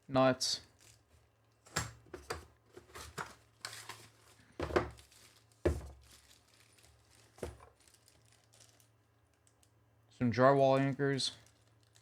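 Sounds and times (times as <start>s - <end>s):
plastic packets crinkling: 0.7s - 1.6s, 3.3s - 9.8s, 11.4s - 12.0s.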